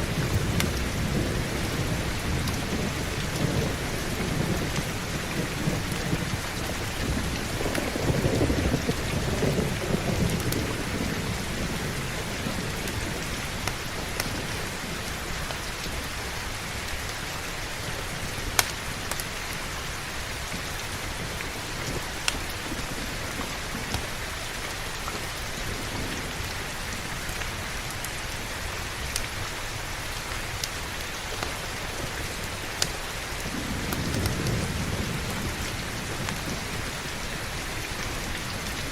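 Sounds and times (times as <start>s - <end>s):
low thunder rumble: 0.0s - 16.8s, 31.6s - 38.9s
heavy rain: 0.0s - 38.9s.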